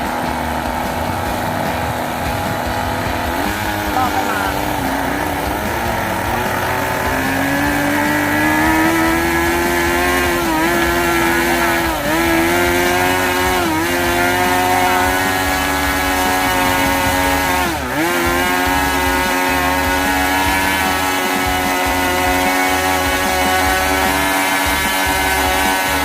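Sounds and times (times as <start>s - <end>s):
model airplane engine buzzing: 0.0s - 26.0s.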